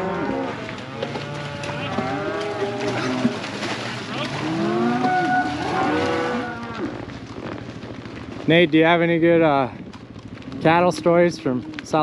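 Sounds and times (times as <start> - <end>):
cattle mooing and bawling: 0.0 - 7.1, 10.4 - 12.0.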